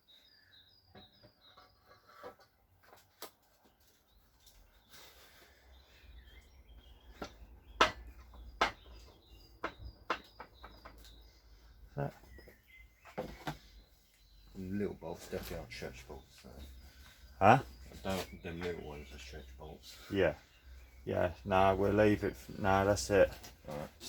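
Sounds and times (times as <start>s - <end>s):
small bird chirping: 0.0s - 2.2s, 3.5s - 24.0s
sharp knocks and clicks: 7.1s - 11.2s.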